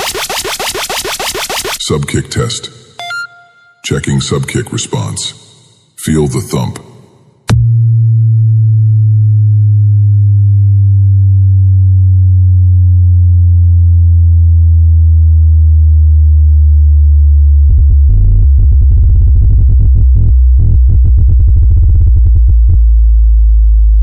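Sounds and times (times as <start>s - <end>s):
deep falling sine tone: 7.5s - 24.0s
choppy electronic bass pattern: 16.4s - 24.0s.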